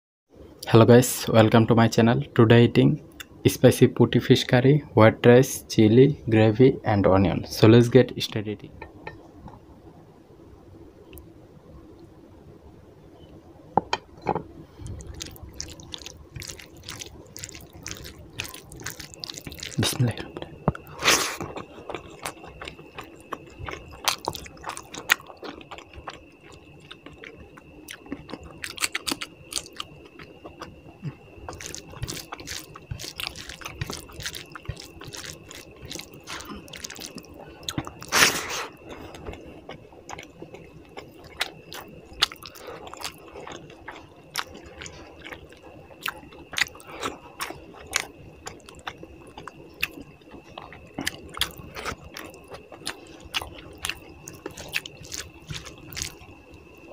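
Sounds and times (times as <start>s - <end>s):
wet squishing of fingers in food: 14.7s - 20.2s, 20.8s - 56.6s
chewing: 14.7s - 56.9s.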